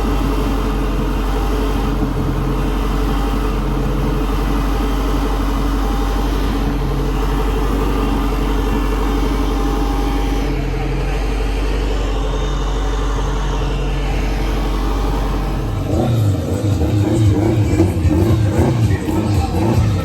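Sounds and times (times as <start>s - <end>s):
car engine and road noise: 0.0s - 20.0s
music: 16.0s - 20.0s.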